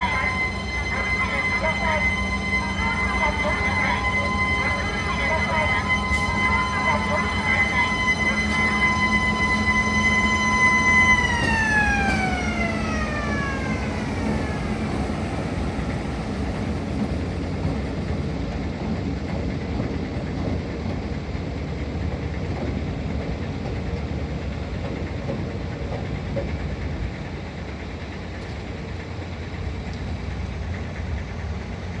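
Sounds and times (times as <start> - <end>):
siren-like warning tone: 0.0 - 17.2
locomotive engine rumble: 0.0 - 32.0.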